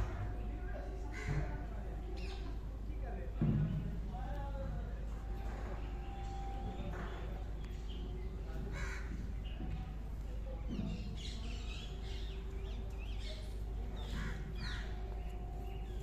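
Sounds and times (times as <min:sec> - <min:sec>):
birds calling: 0:10.8 - 0:16.0.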